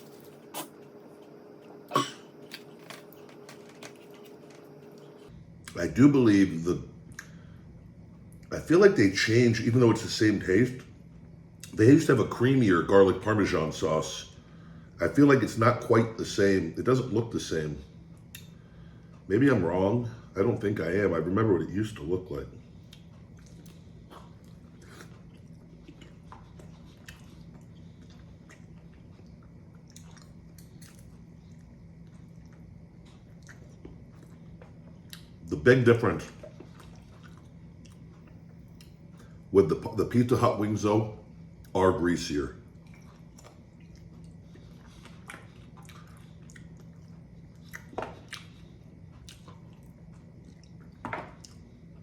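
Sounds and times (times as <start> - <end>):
man chewing chicken wings: 0.0 - 5.8, 22.6 - 39.4, 42.6 - 52.0.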